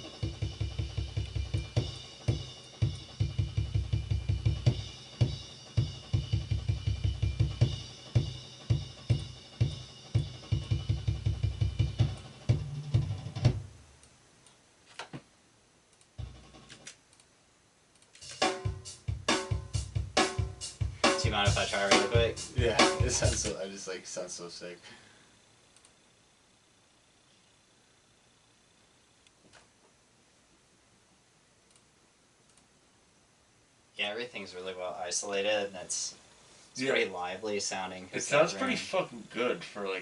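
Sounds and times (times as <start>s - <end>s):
acoustic drum kit groove: 0.0s - 13.7s, 16.2s - 16.9s, 18.2s - 23.8s.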